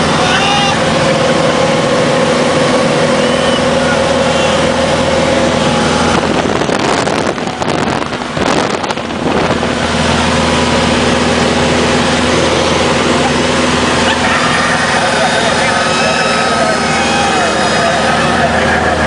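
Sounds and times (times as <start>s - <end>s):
propeller aircraft engine: 0.0s - 19.0s
wind buffeting microphone: 5.5s - 13.1s.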